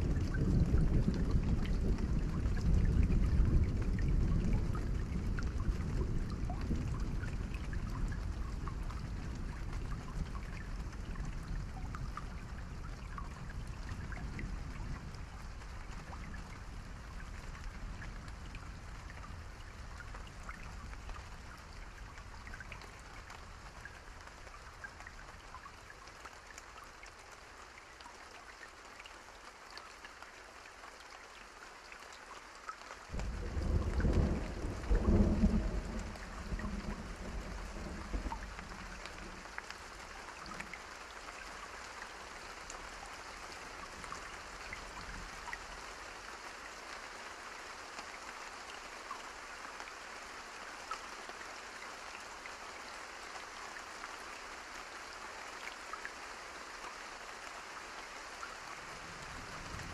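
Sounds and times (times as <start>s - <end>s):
steady rain falling: 0.0s - 59.9s
thunder rumbling: 33.1s - 39.5s.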